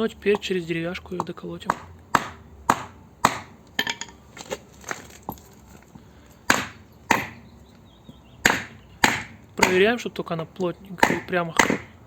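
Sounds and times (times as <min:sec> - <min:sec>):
hammer knocking on wooden block: 0:01.2 - 0:04.1, 0:06.5 - 0:07.4, 0:08.1 - 0:10.0, 0:11.0 - 0:12.0.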